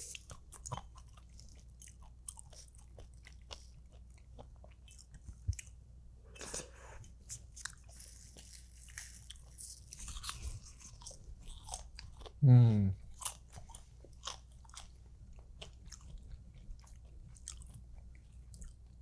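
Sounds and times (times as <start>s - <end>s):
chewing with wet mouth clicks: 0.1s - 5.8s, 13.1s - 19.0s.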